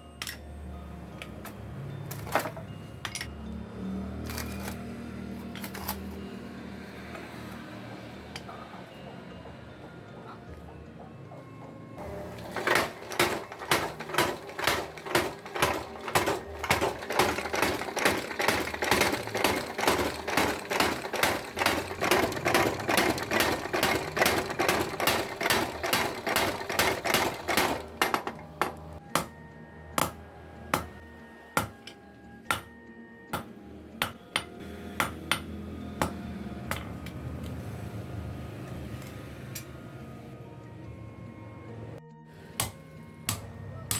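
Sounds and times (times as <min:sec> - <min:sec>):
hammer striking steel on anvil: 0:12.8 - 0:29.4, 0:30.0 - 0:31.0, 0:31.6 - 0:37.2, 0:42.6 - 0:43.9.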